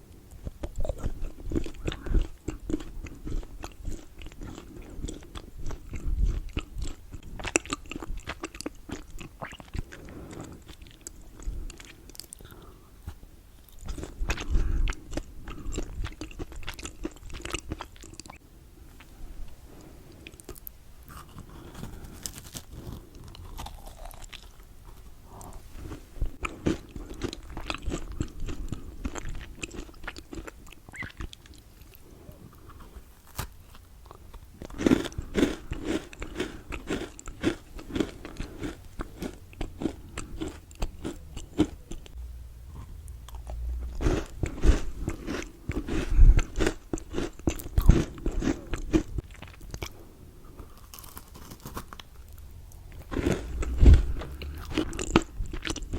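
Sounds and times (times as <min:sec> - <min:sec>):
chewing mouth sounds: 0:00.4 - 0:12.7, 0:13.7 - 0:18.4, 0:23.2 - 0:32.9, 0:34.1 - 0:42.2, 0:42.8 - 0:50.0, 0:50.6 - 0:55.9
chocolate crunching: 0:20.2 - 0:42.2, 0:43.2 - 0:55.9.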